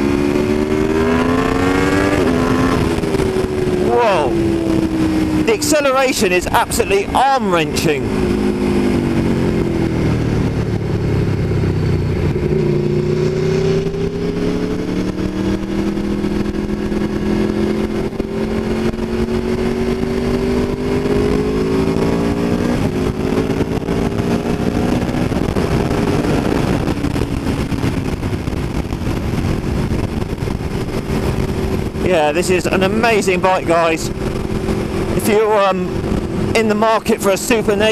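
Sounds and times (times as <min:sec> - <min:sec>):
motorcycle engine running: 0:00.0 - 0:05.6, 0:07.1 - 0:37.9.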